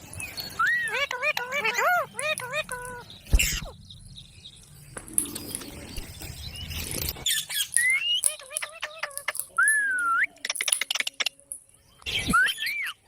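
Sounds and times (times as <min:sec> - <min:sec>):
parrot squawking and chirping: 0:00.0 - 0:03.8, 0:05.2 - 0:11.4.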